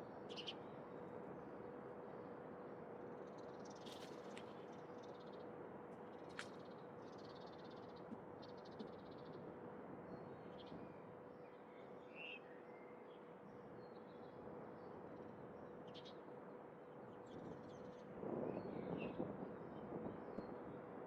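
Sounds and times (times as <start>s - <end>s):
distant bird chirps and trills: 10.1s - 19.2s.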